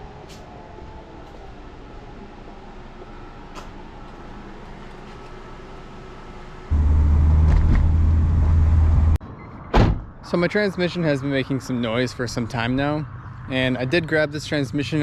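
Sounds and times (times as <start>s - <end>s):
car engine rumbling: 1.5s - 9.2s.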